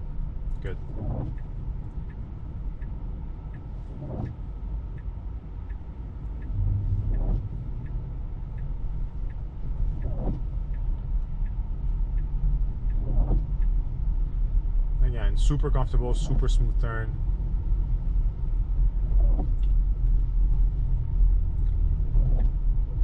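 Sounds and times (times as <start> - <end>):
turn signal ticking: 0.0 - 23.0
soft swish: 6.4 - 7.9.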